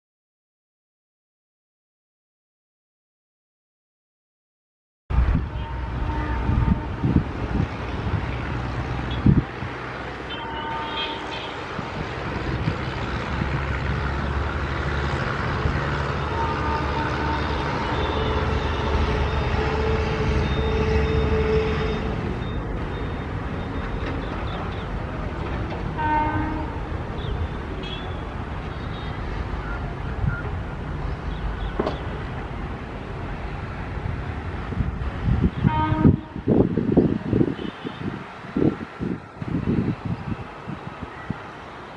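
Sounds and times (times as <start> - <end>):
train rumbling past: 5.1 - 41.9
locomotive horn toots: 5.4 - 7.2, 10.3 - 11.7, 16.0 - 24.7, 25.9 - 29.2, 35.4 - 36.6.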